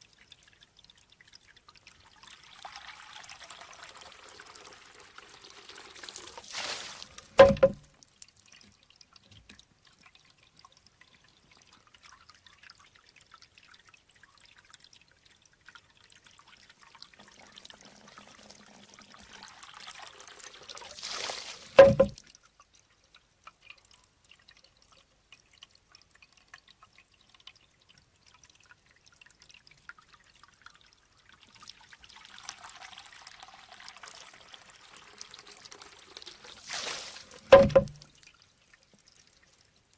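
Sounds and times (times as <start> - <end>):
water pouring: 0.0 - 39.9
water trickling: 0.0 - 39.9
bamboo knocking on rock: 7.4 - 7.9, 21.8 - 22.2, 37.5 - 38.0.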